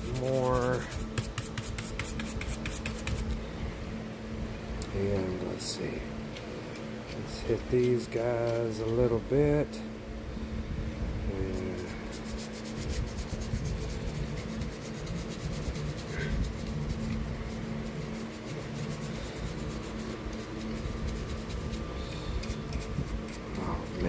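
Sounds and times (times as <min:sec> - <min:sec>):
brush scrubbing on plastic: 0:00.0 - 0:03.3, 0:11.5 - 0:24.0.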